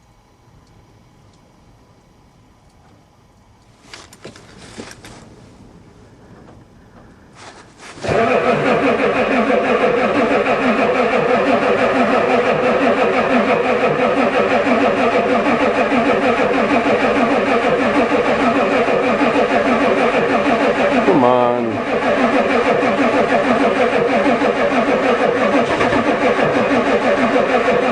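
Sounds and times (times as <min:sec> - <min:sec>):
starter motor cranking engine: 0:06.3 - 0:27.9.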